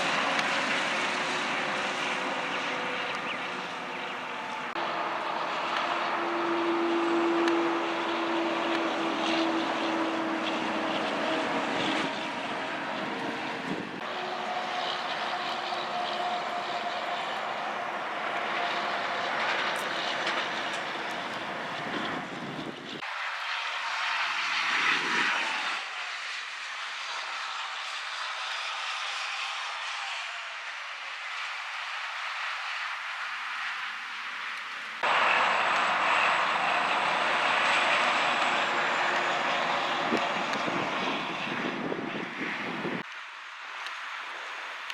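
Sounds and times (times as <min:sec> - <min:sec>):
heavy trucks passing: 0:00.0 - 0:26.1, 0:34.9 - 0:43.1
steady whining tones: 0:00.0 - 0:32.4.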